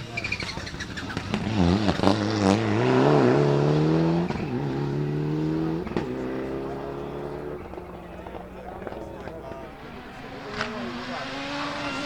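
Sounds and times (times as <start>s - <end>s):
rally car engine revving: 0.0s - 12.0s
exhaust cracks: 3.5s - 11.2s.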